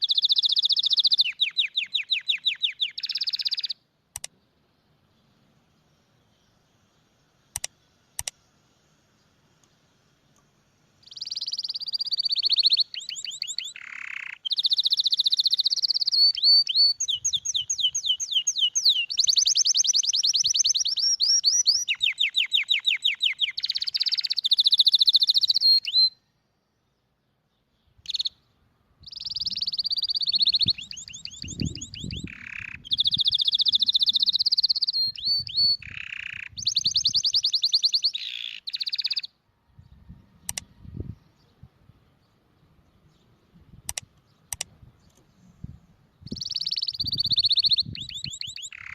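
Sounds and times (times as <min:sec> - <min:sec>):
canary singing trills: 0:00.0 - 0:03.8, 0:11.0 - 0:26.3, 0:27.8 - 0:48.9.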